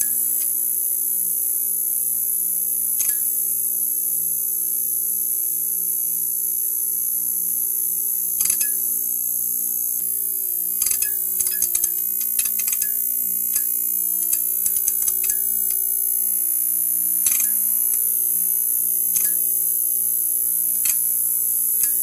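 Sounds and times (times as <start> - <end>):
neon sign buzzing: 8.6 - 22.0.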